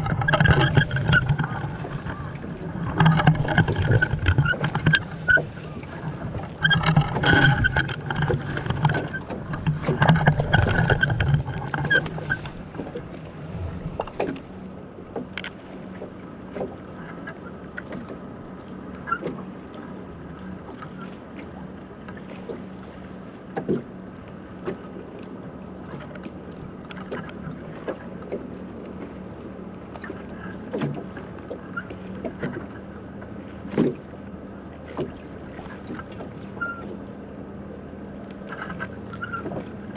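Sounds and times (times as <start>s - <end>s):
steady low hum: 0.0s - 18.9s
water: 0.0s - 39.9s
wind: 0.0s - 39.9s
knocks against hull: 33.7s - 34.0s.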